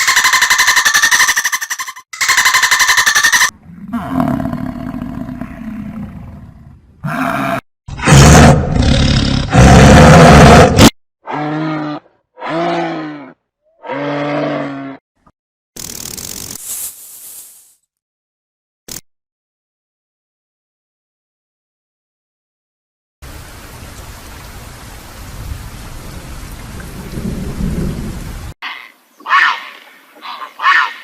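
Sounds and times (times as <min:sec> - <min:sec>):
animal roars: 0:03.6 - 0:15.0.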